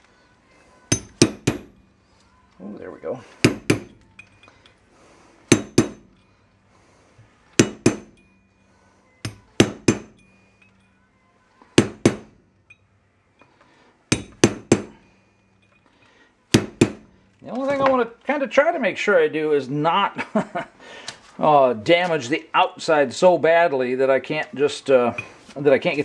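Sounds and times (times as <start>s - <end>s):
hammer striking steel: 0.9s - 1.9s, 3.4s - 4.5s, 5.5s - 6.3s, 7.6s - 11.0s, 11.8s - 12.8s, 14.1s - 15.8s, 16.5s - 17.2s.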